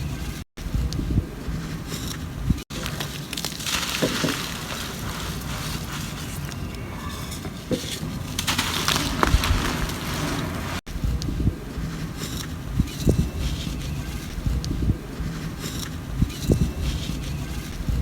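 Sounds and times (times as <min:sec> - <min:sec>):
dry mud crumbling and crackling: 0:01.6 - 0:10.9.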